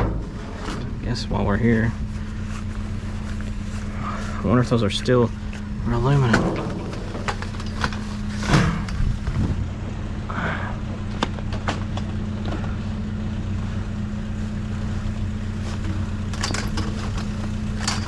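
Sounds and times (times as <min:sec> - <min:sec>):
knocks and clatters: 0:00.0 - 0:01.0, 0:06.2 - 0:09.4, 0:11.1 - 0:12.8, 0:15.8 - 0:18.0
vehicle engine idling: 0:00.0 - 0:18.0.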